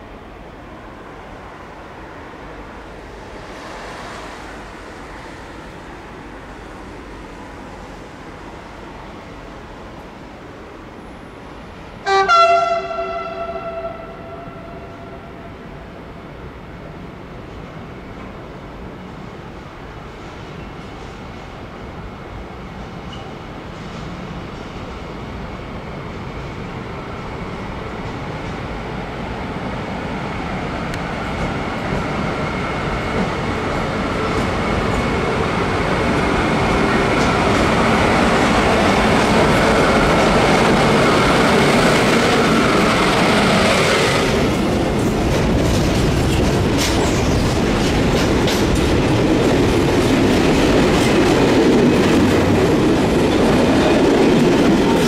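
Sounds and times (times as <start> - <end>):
electric locomotive passing: 0.0 - 55.0
wheels clicking over rail joints: 44.8 - 55.0
freight wagons clickety-clack: 44.9 - 55.0.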